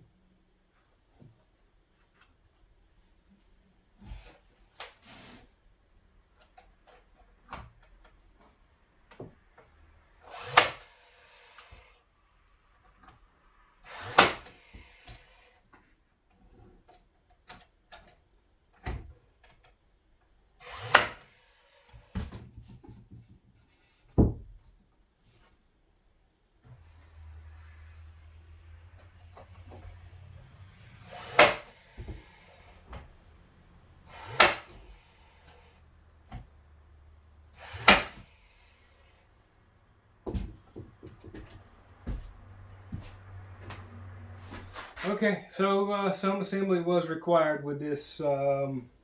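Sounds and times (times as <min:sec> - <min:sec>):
loud sharp strikes on wood: 0:20.9 - 0:21.2, 0:31.2 - 0:31.7, 0:34.3 - 0:34.8, 0:37.7 - 0:38.3.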